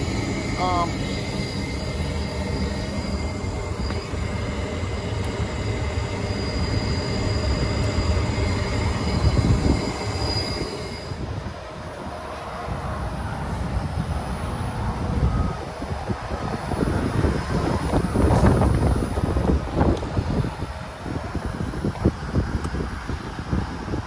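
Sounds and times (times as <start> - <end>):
mechanical rumble: 0.0 - 11.5
thin high whine: 0.0 - 23.6.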